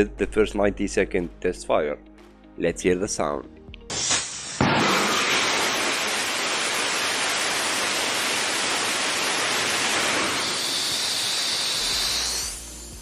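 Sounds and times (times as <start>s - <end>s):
high hiss: 3.9s - 13.0s
rocket engine roaring: 4.5s - 12.6s.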